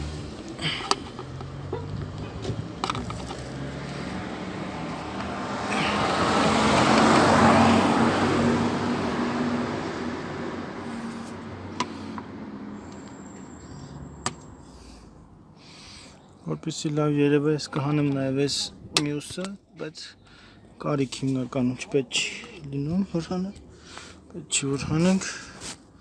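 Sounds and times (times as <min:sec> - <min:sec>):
vehicle driving past: 0:00.0 - 0:15.6
low engine hum: 0:00.0 - 0:15.9.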